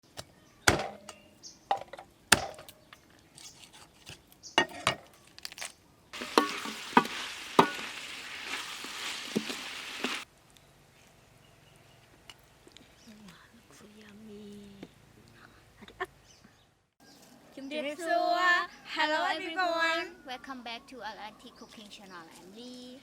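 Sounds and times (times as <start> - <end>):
utensils clinking against a pan: 6.2 - 8.0
food sizzling in hot oil: 6.2 - 10.3.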